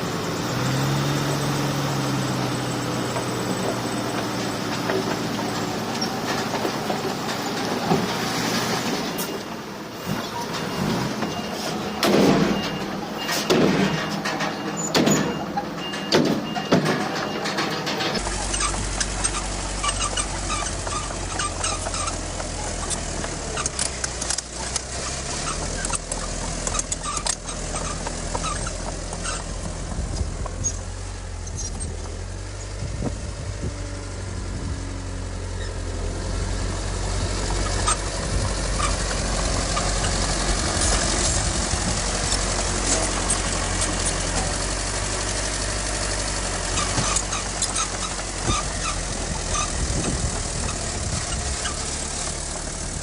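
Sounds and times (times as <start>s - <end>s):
heavy machinery diesel engine: 0.0s - 53.0s
metal clanks and clicks: 10.1s - 30.8s.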